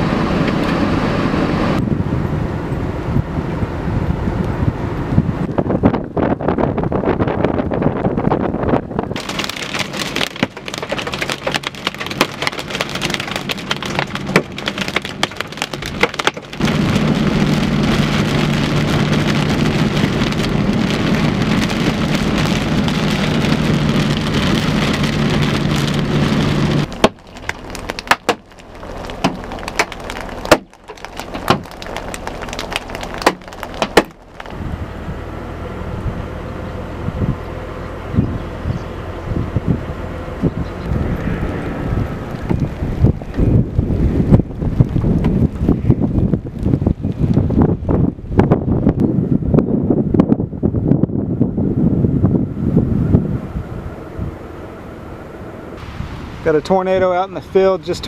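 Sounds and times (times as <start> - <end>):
hail hitting a vehicle: 9.1 - 34.6.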